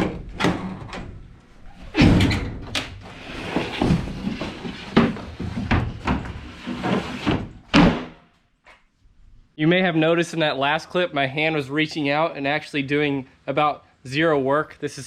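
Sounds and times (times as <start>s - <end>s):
plywood scraping: 3.0s - 7.7s.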